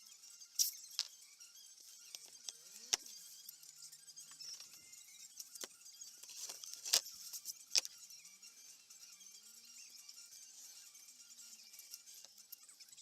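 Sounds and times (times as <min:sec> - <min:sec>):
clicks of small hard objects handled: 0:00.6 - 0:01.1, 0:02.1 - 0:03.1, 0:05.4 - 0:07.9.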